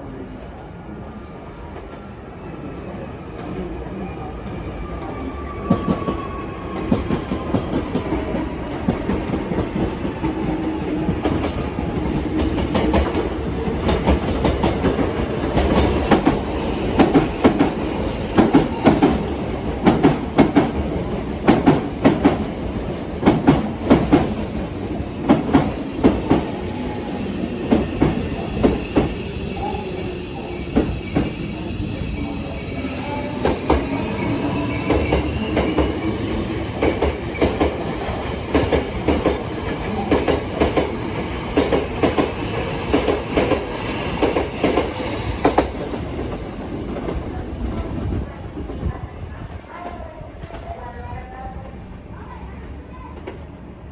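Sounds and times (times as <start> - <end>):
train wheels clacking over rail joints: 11.1 - 17.8.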